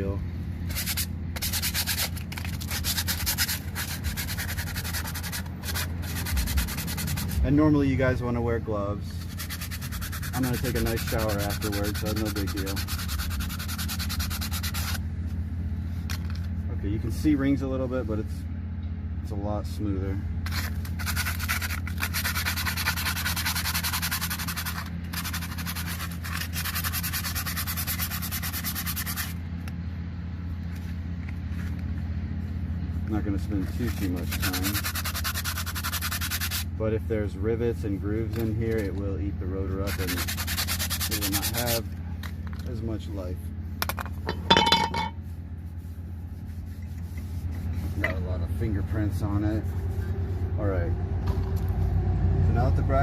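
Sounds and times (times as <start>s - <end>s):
steady low hum: 0.0s - 53.0s
sandpaper sanding brake pad: 0.7s - 7.8s, 9.2s - 15.4s, 20.4s - 29.4s, 33.1s - 36.7s, 37.6s - 41.9s, 45.2s - 50.5s.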